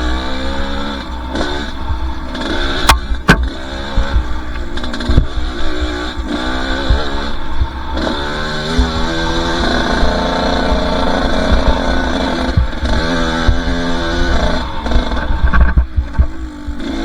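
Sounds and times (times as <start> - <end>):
dirt bike engine revving: 0.0 - 17.0
sharp knocks: 2.7 - 5.4.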